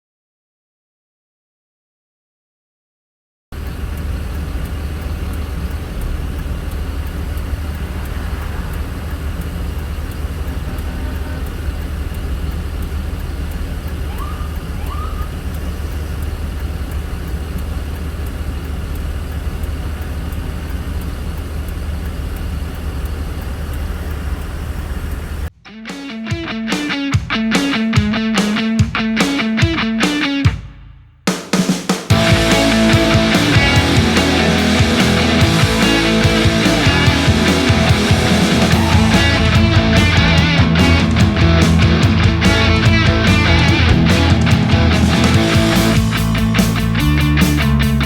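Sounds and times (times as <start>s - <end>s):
low rumbling noise: 3.6s - 25.5s, 32.1s - 48.0s.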